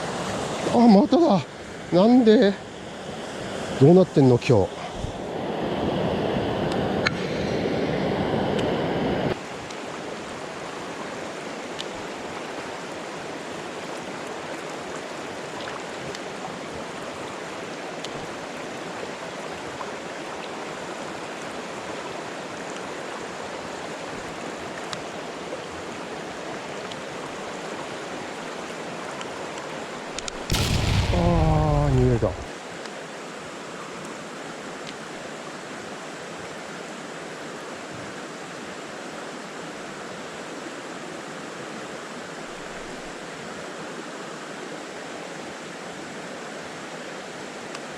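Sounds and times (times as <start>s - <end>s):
stream water rushing: 0.0s - 31.1s.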